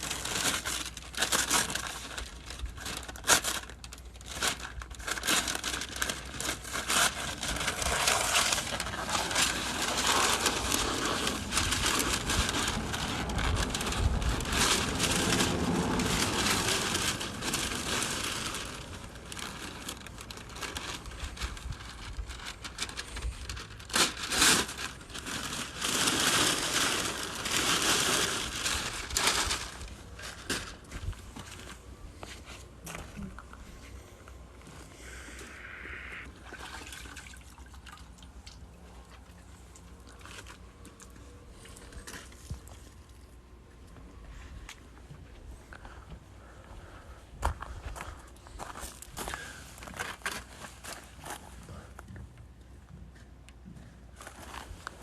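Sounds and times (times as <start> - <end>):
sharp paper rips: 0.0 - 30.8
paper crinkling and tearing: 0.0 - 33.4.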